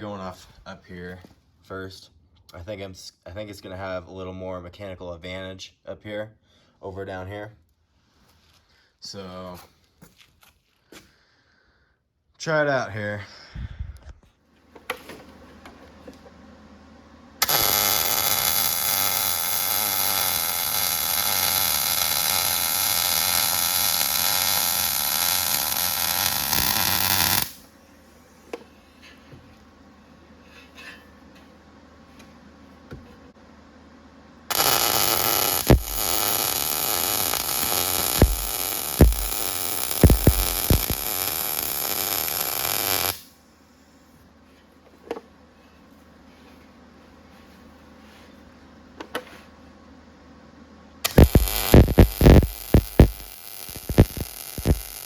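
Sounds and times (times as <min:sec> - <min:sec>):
arc welding sizzling crackle: 0:17.4 - 0:27.8, 0:34.5 - 0:43.4, 0:51.0 - 0:55.0
sharp pops: 0:34.5 - 0:43.2, 0:51.1 - 0:55.0.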